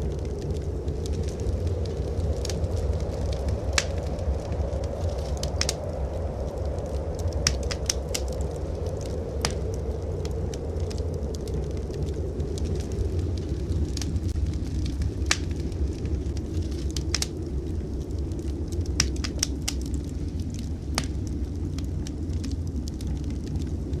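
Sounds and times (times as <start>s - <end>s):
low rumble: 0.0s - 24.0s
wood fire crackling: 0.0s - 24.0s
sharp pops of fire: 2.2s - 4.5s, 5.1s - 6.1s, 7.2s - 9.8s, 14.0s - 17.3s, 18.8s - 23.6s.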